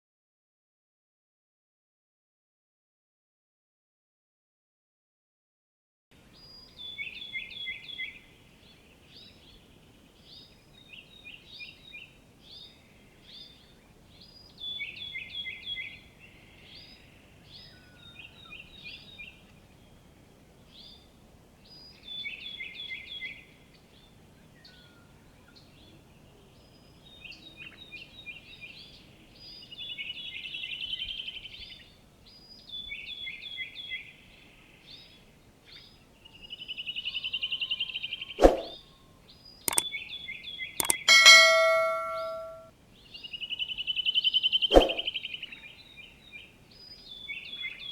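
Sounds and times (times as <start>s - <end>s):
birds chirping: 37.5s - 42.6s
bird repeating high falling phrase: 40.8s - 42.6s
buzzy bird trill: 40.8s - 42.6s.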